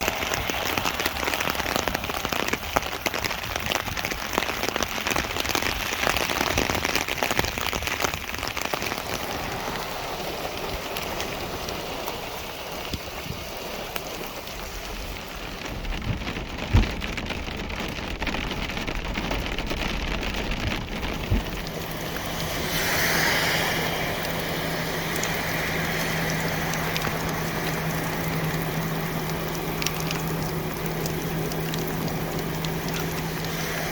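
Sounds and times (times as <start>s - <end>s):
heavy rain pattering: 0.0s - 33.9s
low hum: 14.4s - 33.9s.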